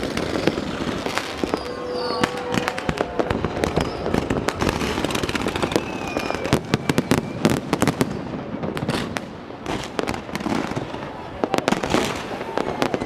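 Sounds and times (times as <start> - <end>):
faint firework whistle: 0.0 - 8.5, 11.5 - 13.0
fireworks bangs and crackles: 0.0 - 13.0.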